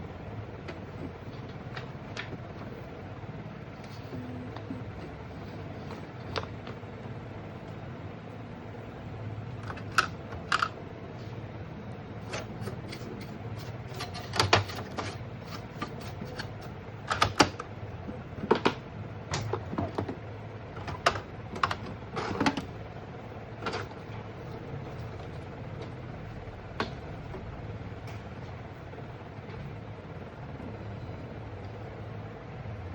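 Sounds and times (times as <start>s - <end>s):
steady low hum: 0.0s - 32.9s
plastic printer parts clicking: 9.6s - 10.8s, 12.2s - 22.8s, 23.6s - 26.0s.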